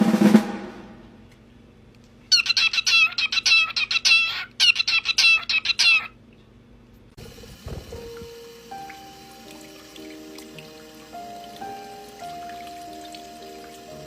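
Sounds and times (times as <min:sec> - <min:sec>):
canary singing: 0:02.3 - 0:06.2.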